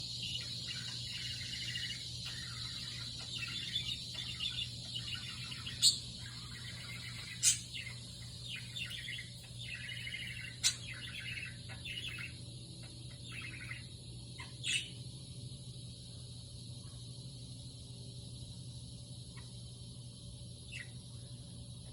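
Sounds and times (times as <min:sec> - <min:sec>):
sharp loud bird chirps: 0:00.0 - 0:12.4, 0:13.1 - 0:15.0
budgerigar chattering and warbling: 0:00.4 - 0:12.4, 0:14.4 - 0:15.0.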